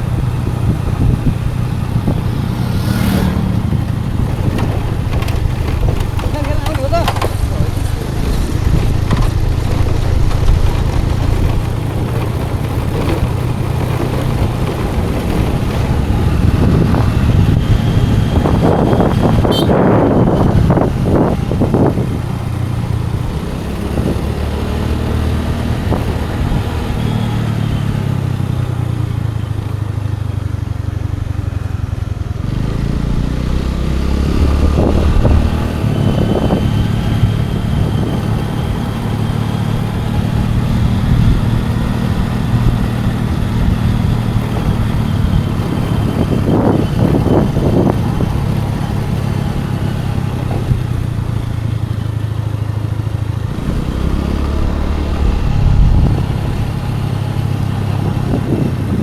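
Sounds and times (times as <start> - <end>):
scooter engine running: 0.0 - 59.0
short rattles: 1.3 - 17.1.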